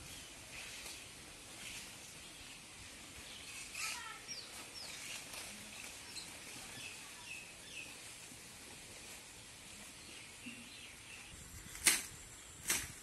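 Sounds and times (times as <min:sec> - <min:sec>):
small birds chirping: 0:00.0 - 0:08.4, 0:09.0 - 0:12.8
brief rustle: 0:03.4 - 0:06.7.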